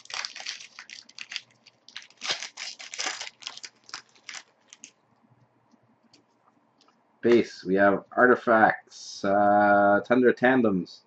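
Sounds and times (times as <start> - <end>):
foil wrapper crinkling: 0.0 - 5.0
wrapper tearing: 0.0 - 5.0.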